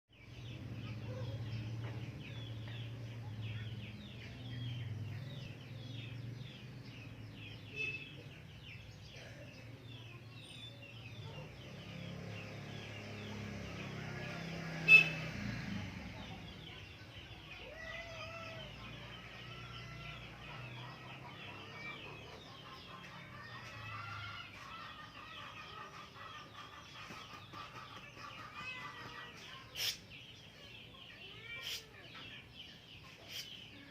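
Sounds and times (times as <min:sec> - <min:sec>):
birds chirping: 0:00.1 - 0:33.9
chickens clucking: 0:16.0 - 0:33.9.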